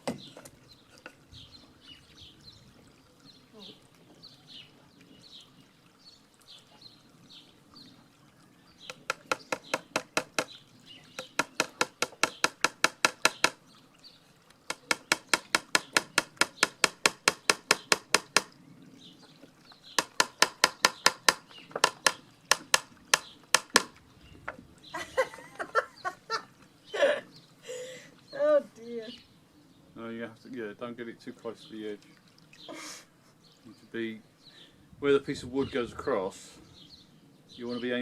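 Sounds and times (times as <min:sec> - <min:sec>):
hammer tapping nails into wood: 0:08.9 - 0:10.5, 0:11.2 - 0:13.6, 0:14.7 - 0:18.5, 0:20.0 - 0:23.9.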